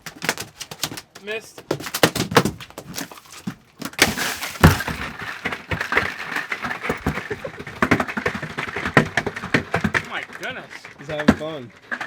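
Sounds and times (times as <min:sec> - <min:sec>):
fish flopping on boat deck: 0:00.0 - 0:09.5.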